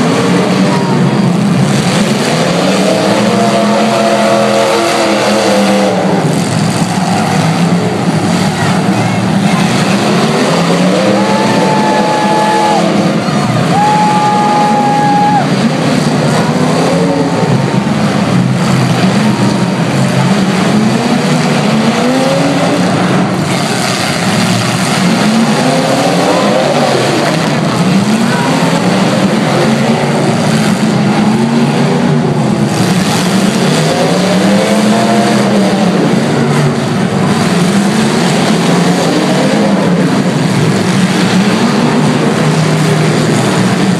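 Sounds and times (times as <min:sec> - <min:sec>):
car engines revving: 0:00.0 - 0:43.9
loud steady din: 0:00.0 - 0:43.9.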